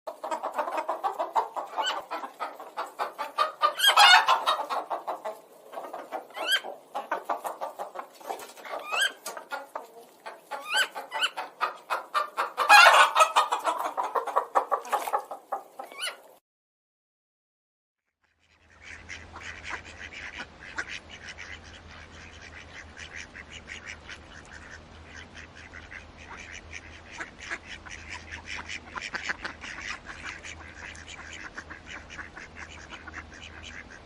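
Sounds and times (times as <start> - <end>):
chickens clucking: 0.1 - 16.4, 18.4 - 34.0
chickens squawking: 0.1 - 16.4, 18.5 - 34.0.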